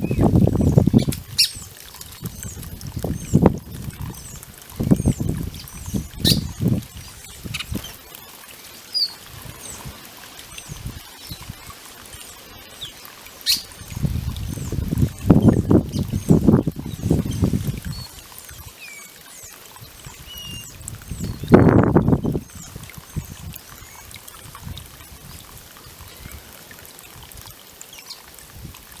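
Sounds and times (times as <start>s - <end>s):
birds splashing in water: 0.0s - 29.0s
water trickling in fountain: 0.0s - 29.0s
high bird chirps: 5.0s - 8.0s, 12.8s - 14.0s
faint high bird chirps: 12.8s - 13.8s.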